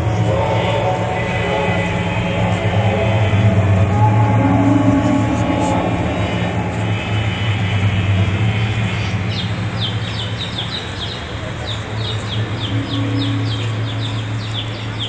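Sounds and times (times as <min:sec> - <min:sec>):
steady low hum: 0:00.0 - 0:15.0
small birds chirping: 0:09.3 - 0:15.0.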